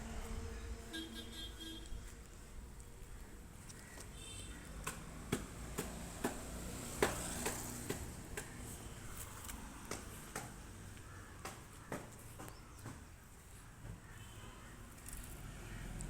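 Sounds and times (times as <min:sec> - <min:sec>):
sharp irregular clicks and taps: 0:04.8 - 0:06.4, 0:09.8 - 0:13.0.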